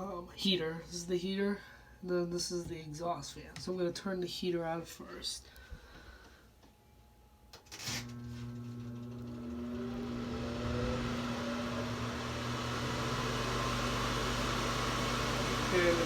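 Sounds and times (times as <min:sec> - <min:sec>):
fan motor humming: 0:08.0 - 0:16.0
blower rising tones: 0:08.9 - 0:16.0.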